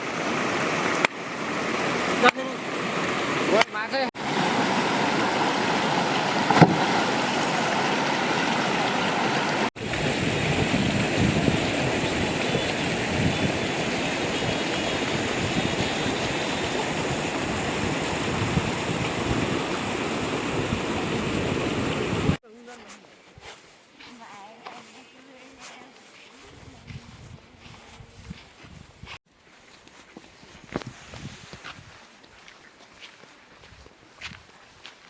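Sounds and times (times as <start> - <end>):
flowing water rushing: 0.0 - 22.4.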